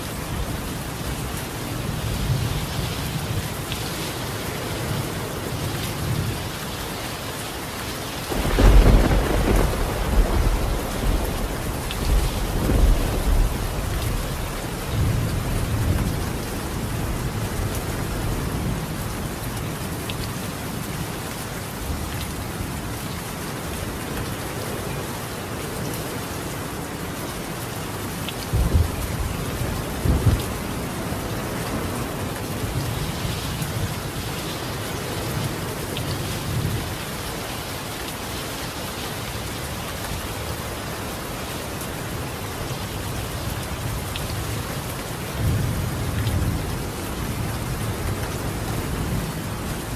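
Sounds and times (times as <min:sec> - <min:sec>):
rain on a tiled roof: 0:00.0 - 0:49.9
thunder rumbling: 0:08.3 - 0:17.4.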